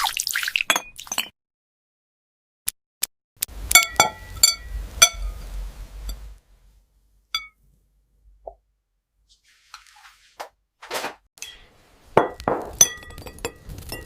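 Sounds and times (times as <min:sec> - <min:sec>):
glass jar clinking on ceramic plate: 0:03.8 - 0:05.3, 0:07.4 - 0:07.6, 0:11.4 - 0:14.0
soft scratching: 0:09.3 - 0:11.1.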